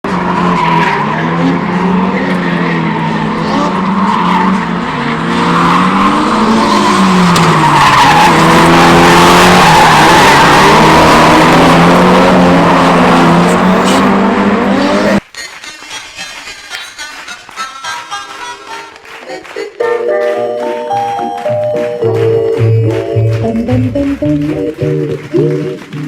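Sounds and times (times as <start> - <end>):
car engine revving: 0.0 - 15.2.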